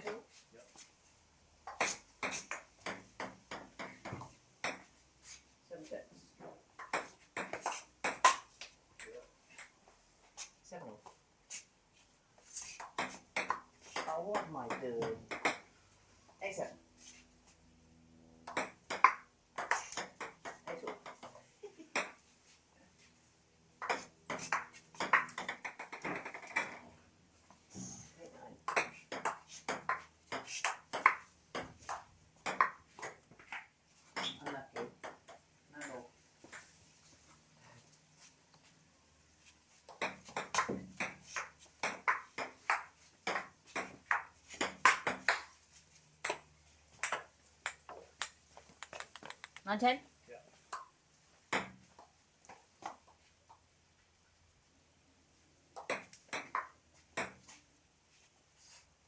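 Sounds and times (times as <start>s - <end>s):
table tennis ball hits and bounces: 1.6s - 4.9s, 6.8s - 9.8s, 12.8s - 15.7s, 18.4s - 22.2s, 23.8s - 27.0s, 28.6s - 36.8s, 39.9s - 45.6s, 46.2s - 49.7s, 50.7s - 50.9s, 51.5s - 52.1s, 55.8s - 57.5s
ping pong ball clicking: 18.5s - 21.3s, 47.0s - 49.7s.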